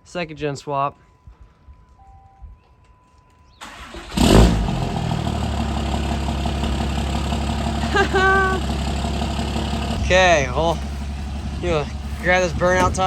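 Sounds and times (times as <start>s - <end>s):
truck engine starting and idling: 3.6s - 13.0s.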